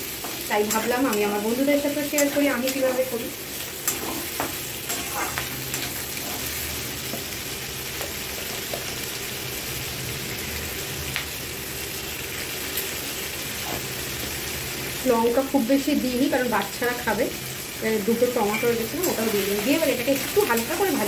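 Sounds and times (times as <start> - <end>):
vegetables sizzling in a pan: 0.0 - 21.0
metal spatula scraping a pan: 3.8 - 6.7.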